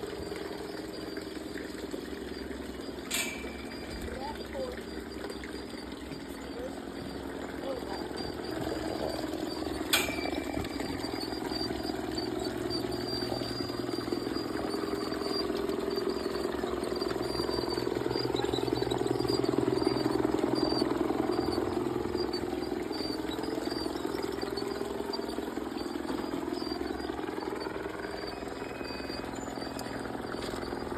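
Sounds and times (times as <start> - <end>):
model train motor whir: 0.0 - 30.9
model train wheel clatter: 0.0 - 30.9.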